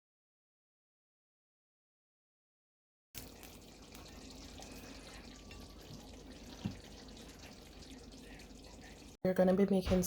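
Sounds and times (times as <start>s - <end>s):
faint running water: 3.2s - 10.0s.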